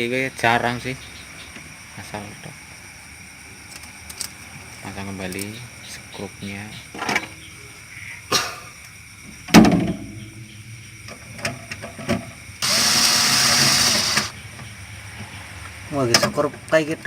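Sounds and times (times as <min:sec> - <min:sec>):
power drill driving screw: 0:12.6 - 0:14.4.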